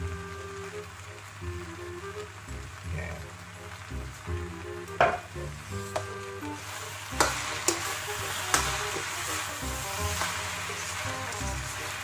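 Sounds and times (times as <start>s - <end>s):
noodles sizzling in a wok: 0.0s - 12.0s
metal spatula knocking on pan: 5.0s - 5.3s.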